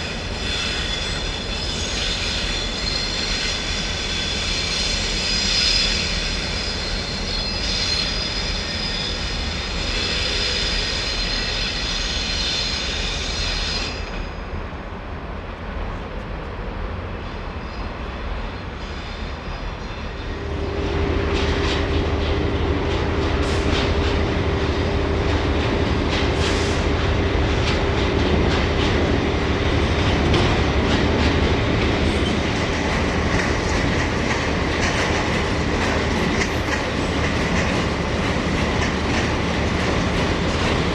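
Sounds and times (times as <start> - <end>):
train high whine: 0.0 - 40.9
train steady hum: 0.0 - 40.9
wheels clacking over rail joints: 20.9 - 40.9.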